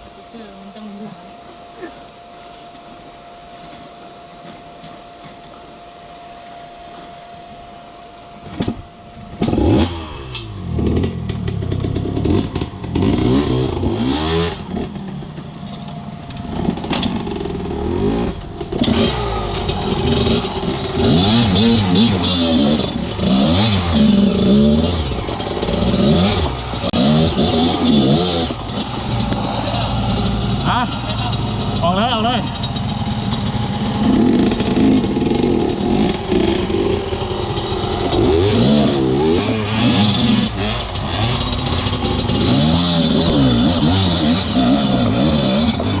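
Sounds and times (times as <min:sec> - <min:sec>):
faint steady hum: 0:00.0 - 0:23.2
dirt bike engine revving: 0:09.3 - 0:15.4, 0:16.4 - 0:46.0.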